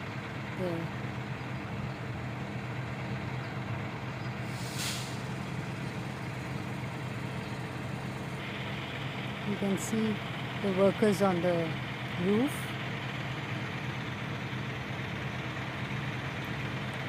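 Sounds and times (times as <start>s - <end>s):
diesel truck engine humming: 0.0s - 17.0s
air release hiss: 4.4s - 5.2s.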